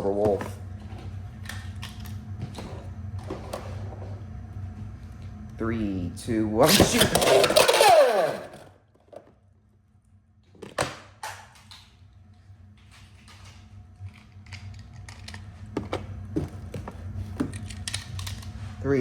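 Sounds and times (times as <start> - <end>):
launcher rip: 6.6 - 8.6
spinning tops clacking: 6.7 - 8.6
whine of spinning tops: 6.7 - 8.7.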